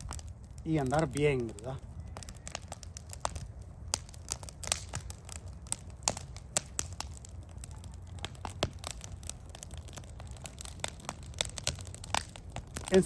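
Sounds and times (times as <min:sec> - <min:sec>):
campfire crackling and popping: 0:00.0 - 0:13.0
low fire rumble: 0:00.0 - 0:13.0.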